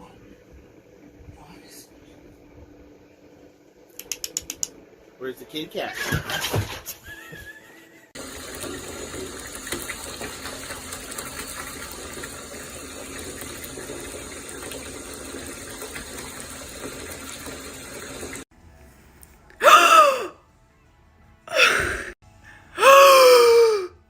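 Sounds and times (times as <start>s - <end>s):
running water: 8.2s - 18.5s.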